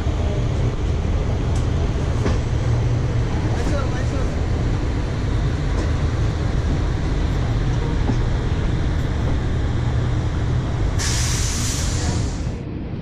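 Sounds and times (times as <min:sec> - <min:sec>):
train rumbling on track: 0:00.0 - 0:13.0
loud hiss: 0:11.0 - 0:12.5.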